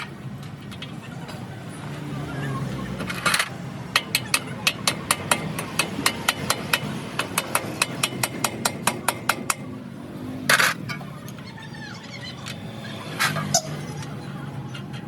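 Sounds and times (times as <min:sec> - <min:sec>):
hammer tapping on wheel hub: 0:03.4 - 0:09.7.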